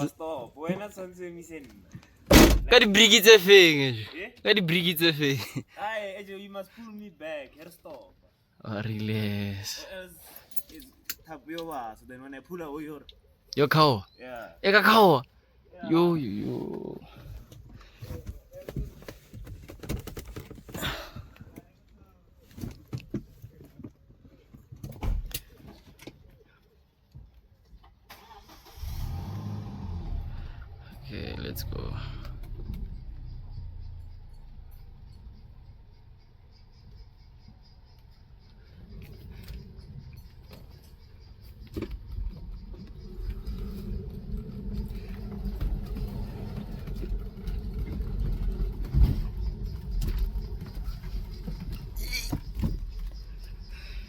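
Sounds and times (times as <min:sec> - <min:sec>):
vehicle engine starting and running: 0:02.3 - 0:03.9, 0:28.1 - 0:54.0
short high squeal: 0:52.0 - 0:52.4.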